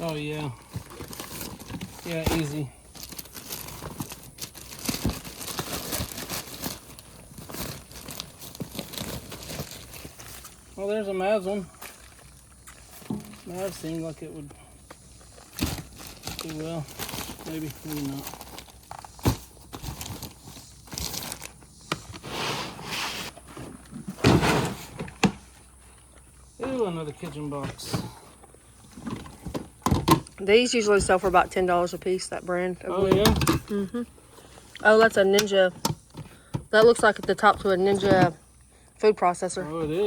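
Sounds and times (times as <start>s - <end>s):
packaging crinkling and rustling: 0.0s - 10.8s, 11.8s - 14.1s, 14.9s - 22.2s
cardboard rustling and sliding: 19.0s - 25.5s
loud scrape or thump: 22.2s - 25.4s.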